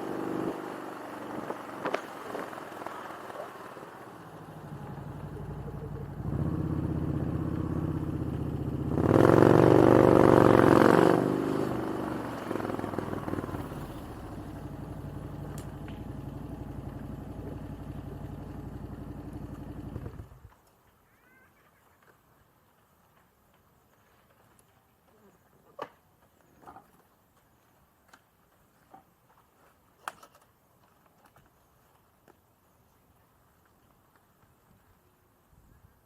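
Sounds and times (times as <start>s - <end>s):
motorcycle engine revving: 0.0s - 20.4s.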